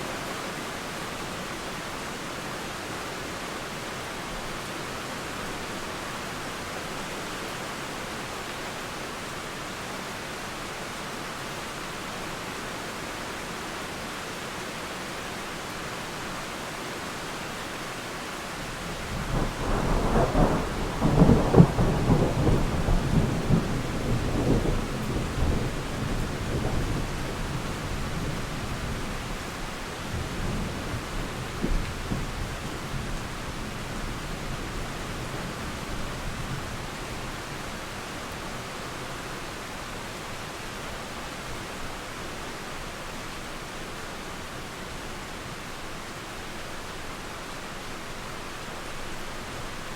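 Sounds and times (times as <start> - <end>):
steady rain: 0.0 - 49.9
thunder rumbling and cracking: 19.1 - 28.3.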